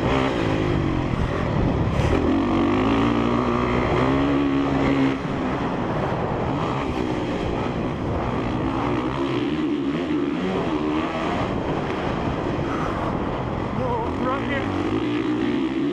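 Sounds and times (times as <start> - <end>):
dirt bike engine revving: 0.0 - 15.9.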